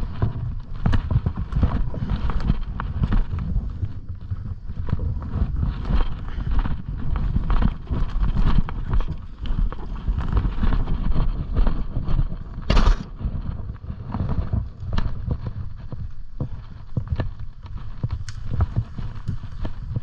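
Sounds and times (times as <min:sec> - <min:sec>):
heavy thumping on microphone: 0:10.0 - 0:20.0.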